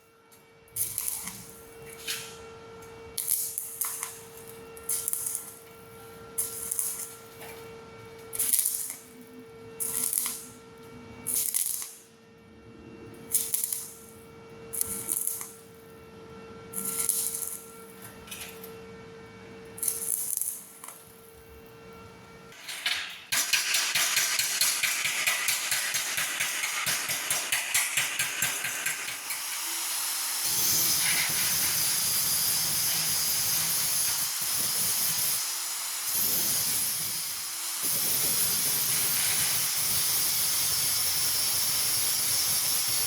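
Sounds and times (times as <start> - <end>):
welding arc crackling: 3.2 - 5.6, 6.4 - 7.4, 8.4 - 9.1, 9.8 - 10.5, 11.3 - 12.0, 14.8 - 15.6, 23.3 - 43.0.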